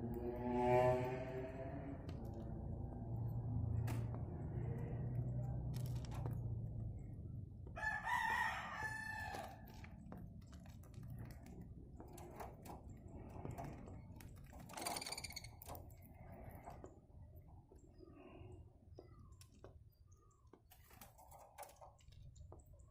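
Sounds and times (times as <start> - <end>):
rooster crowing: 7.8 - 9.6.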